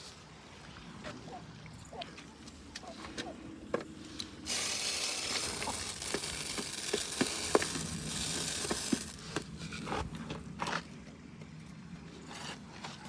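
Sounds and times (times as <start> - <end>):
steady hiss: 4.4 - 9.6
chickens pecking at feed: 4.5 - 9.6.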